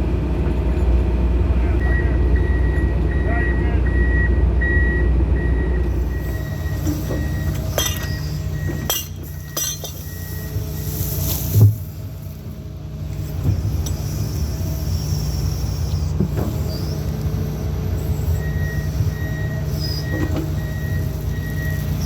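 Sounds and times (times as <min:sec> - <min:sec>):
excavator diesel engine running: 0:00.0 - 0:22.0
metal clinks and clanks: 0:06.8 - 0:10.3.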